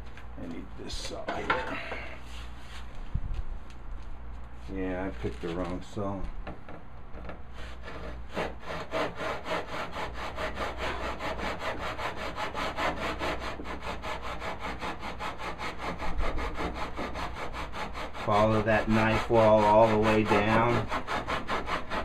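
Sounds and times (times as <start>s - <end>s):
hand saw cutting wood: 7.5s - 22.0s.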